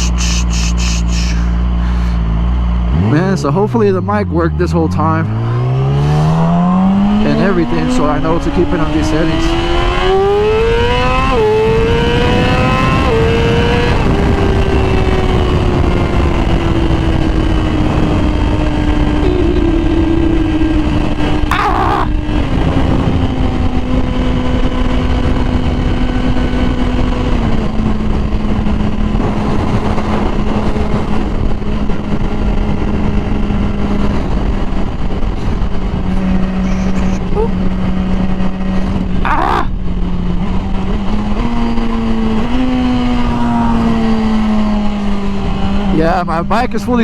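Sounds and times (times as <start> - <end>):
sport bike engine revving: 0.0 - 34.6
wind noise: 3.8 - 47.0.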